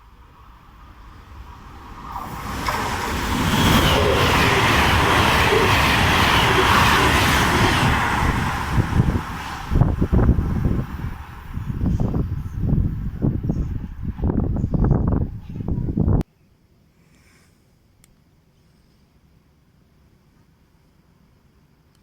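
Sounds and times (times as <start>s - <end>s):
train passing at speed: 0.0s - 16.2s.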